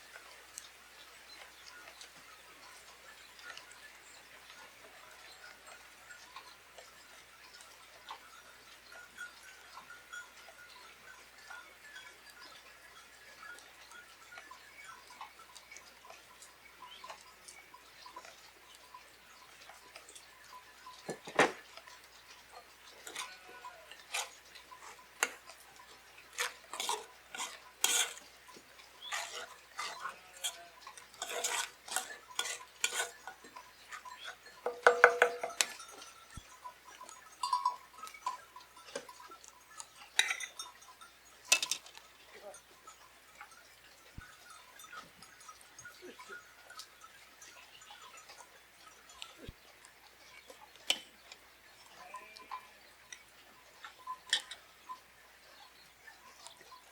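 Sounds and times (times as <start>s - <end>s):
cookware and utensils clinking: 11.4s - 56.9s.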